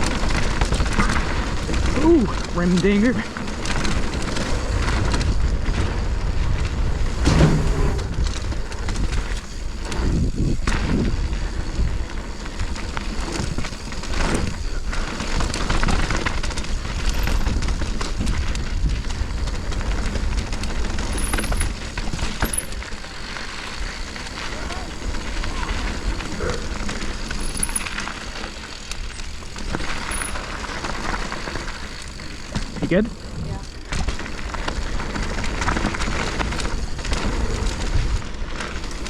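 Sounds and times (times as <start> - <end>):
wind rushing over microphone: 0.0 - 22.6
bike rattling and knocking: 0.0 - 39.0
tyres on dirt: 0.0 - 39.0.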